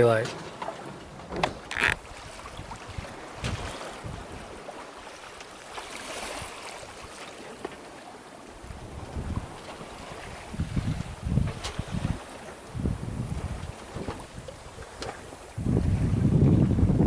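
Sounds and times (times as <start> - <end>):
water washing along hull: 0.0 - 17.0
wind buffeting microphone: 1.2 - 4.7, 8.6 - 17.0.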